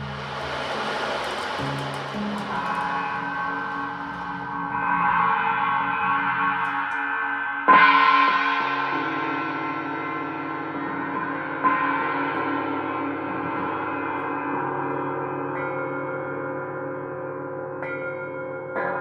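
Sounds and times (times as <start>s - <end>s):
gongs ringing: 0.0s - 7.3s.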